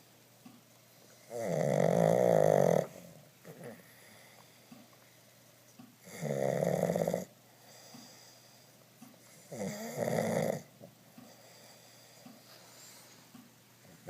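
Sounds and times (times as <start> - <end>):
dog snoring loudly: 1.2 - 4.0, 6.0 - 7.4, 9.3 - 10.7.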